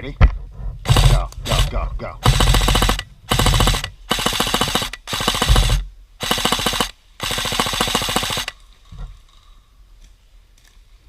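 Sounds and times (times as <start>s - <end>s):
airsoft gun full-auto bursts: 0.9s - 8.6s.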